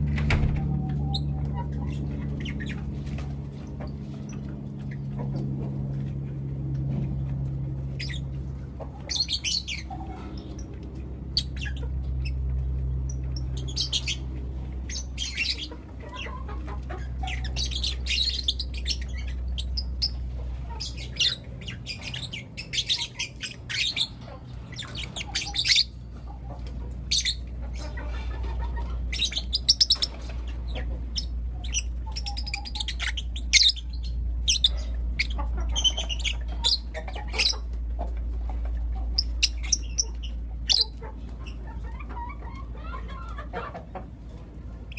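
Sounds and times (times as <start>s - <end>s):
steady low hum: 0.0s - 42.8s
lovebirds chirping: 7.8s - 43.6s.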